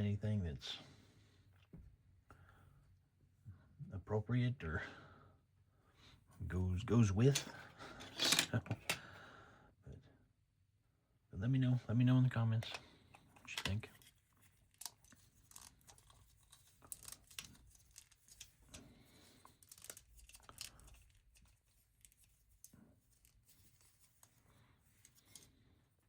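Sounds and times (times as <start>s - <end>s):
plastic toy bricks clicking and rustling: 7.3s - 8.9s, 13.4s - 23.9s.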